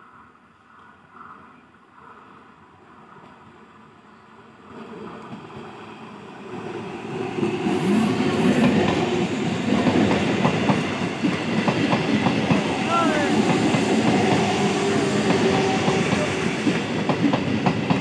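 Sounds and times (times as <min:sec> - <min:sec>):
train passing: 0:00.1 - 0:18.0
wheels clacking over rail joints: 0:07.4 - 0:18.0.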